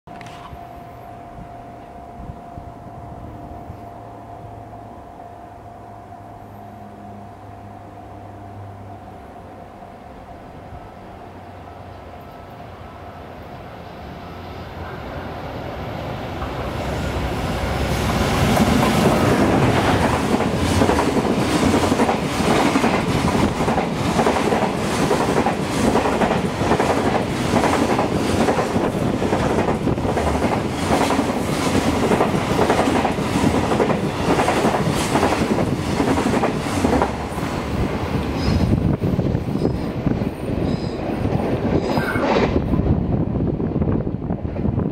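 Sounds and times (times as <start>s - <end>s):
freight train passing: 0.1s - 44.9s
train wheels clacking on rail joints: 18.0s - 42.7s.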